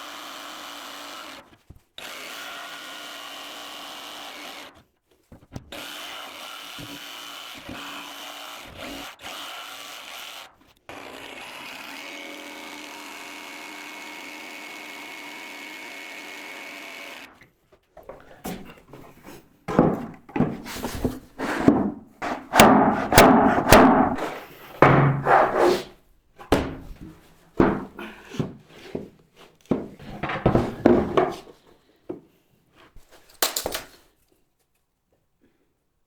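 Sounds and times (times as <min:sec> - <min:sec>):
wooden knocks and thuds: 0:18.0 - 0:25.7, 0:26.4 - 0:29.1, 0:29.7 - 0:31.5.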